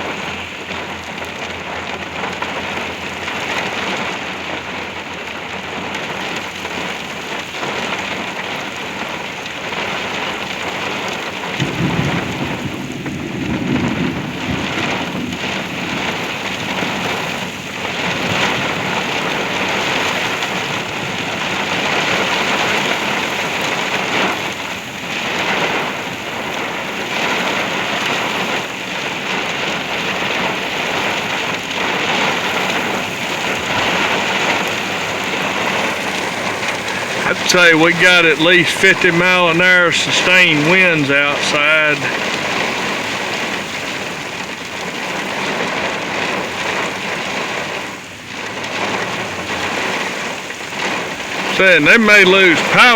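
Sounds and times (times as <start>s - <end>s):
heavy rain on a vehicle roof: 0.0s - 52.9s
thunder rumble: 11.4s - 52.9s
gusty wind: 11.6s - 52.9s.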